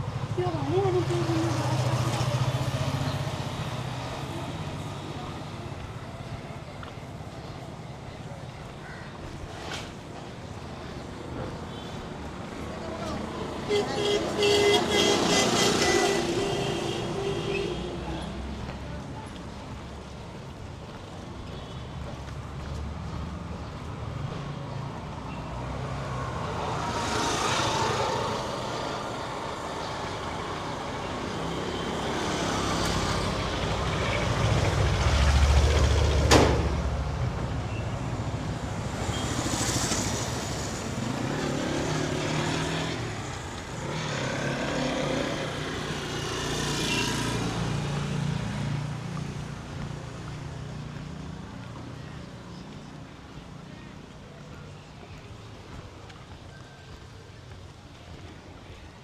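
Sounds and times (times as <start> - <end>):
vehicles passing by: 0.0 - 59.0
heavy vehicle passing: 22.4 - 51.8.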